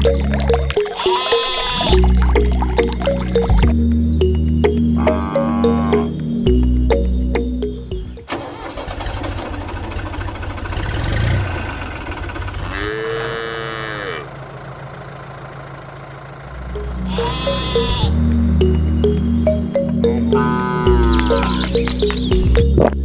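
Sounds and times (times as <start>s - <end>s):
background music: 0.0s - 8.7s, 16.6s - 23.0s
farm animal bleating: 0.8s - 2.1s, 5.0s - 6.1s, 12.6s - 15.1s, 16.7s - 21.8s.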